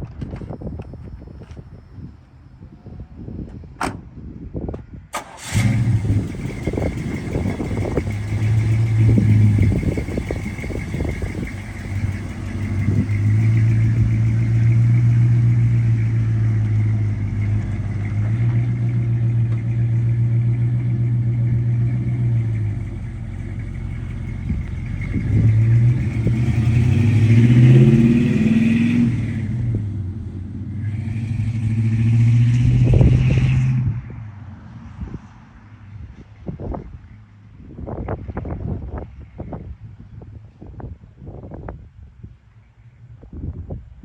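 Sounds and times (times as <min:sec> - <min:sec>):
pickup truck engine revving: 0:05.2 - 0:34.0.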